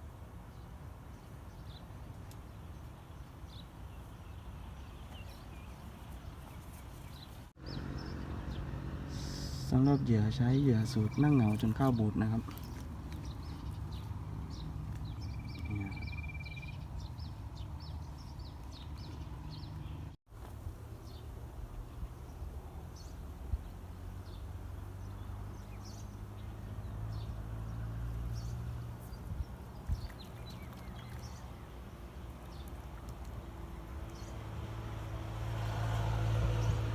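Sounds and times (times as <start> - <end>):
high bird trill: 7.6 - 20.1
continuous low rumble: 7.6 - 20.6
short bird chirps: 12.6 - 17.3.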